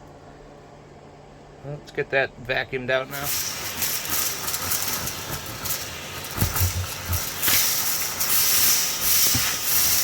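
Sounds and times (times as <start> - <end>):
vacuum cleaner running: 3.0 - 10.0.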